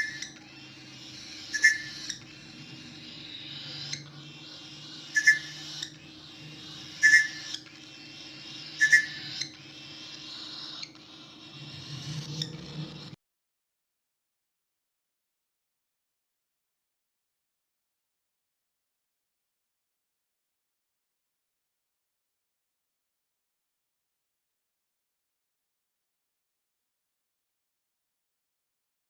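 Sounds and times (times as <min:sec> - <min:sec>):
bird whistled calls: 0:00.0 - 0:13.2.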